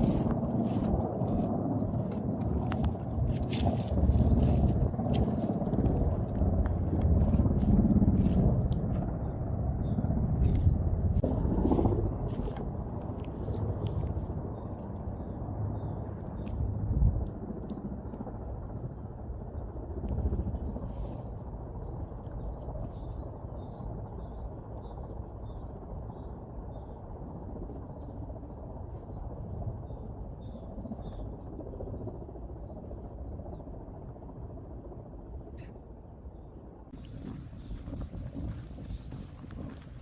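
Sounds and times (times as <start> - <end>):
countryside background noise: 0.0 - 40.0
songbirds chirping: 36.2 - 40.0.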